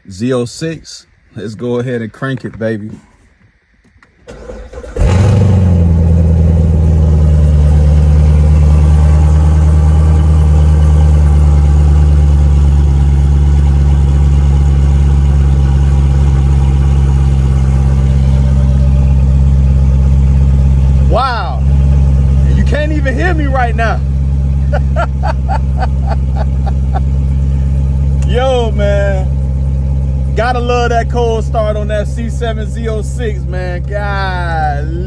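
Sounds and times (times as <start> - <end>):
starter motor cranking: 4.3 - 5.6
car engine idling loudly: 4.3 - 35.0.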